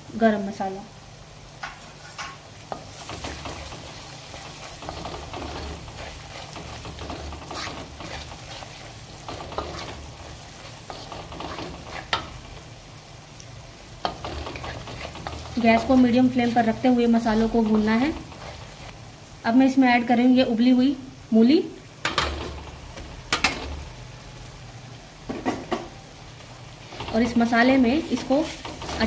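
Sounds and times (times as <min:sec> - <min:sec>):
spices sizzling in oil: 0:00.0 - 0:29.0
wooden spatula scraping pan: 0:01.9 - 0:12.6, 0:14.0 - 0:19.0, 0:26.9 - 0:29.0.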